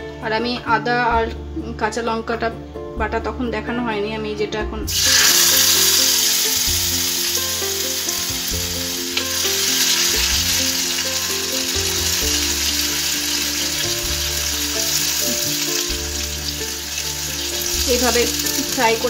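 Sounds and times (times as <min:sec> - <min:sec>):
paste sizzling in hot oil: 0:04.9 - 0:19.0.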